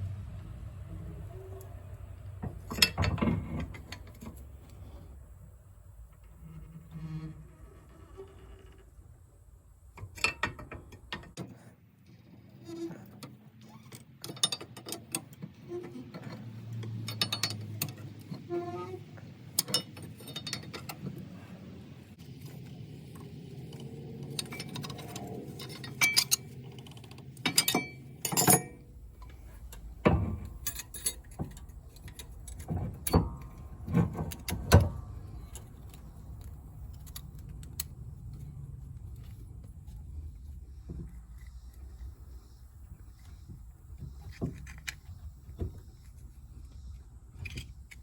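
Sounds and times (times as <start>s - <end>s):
hand tools clinking on metal: 24.4s - 28.8s, 29.6s - 34.6s.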